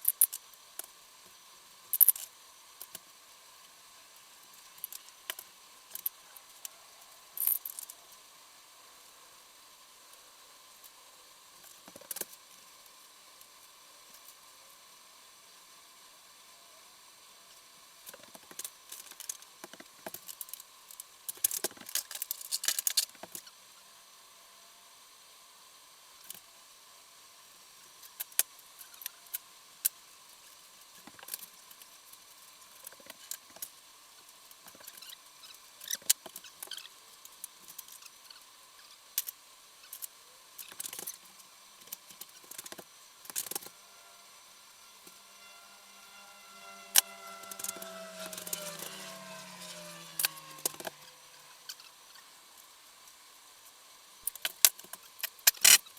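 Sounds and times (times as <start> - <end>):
metal parts clicking and scraping: 1.9 - 2.3, 7.4 - 8.0, 21.3 - 23.1, 41.9 - 43.7, 46.4 - 51.1, 54.3 - 55.8.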